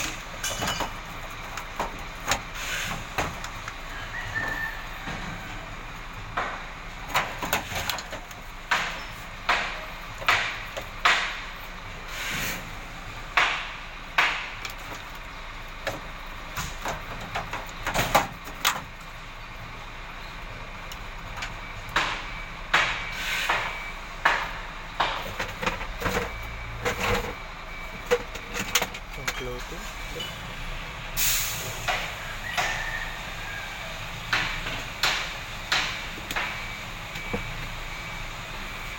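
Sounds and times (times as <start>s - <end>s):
sharp knocks and bangs on metal: 6.3s - 11.6s, 13.3s - 15.0s, 21.9s - 27.4s, 34.3s - 36.6s.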